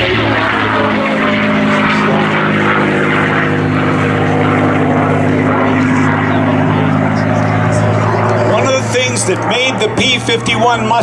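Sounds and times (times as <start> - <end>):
propeller aircraft engine drone: 0.0 - 11.0.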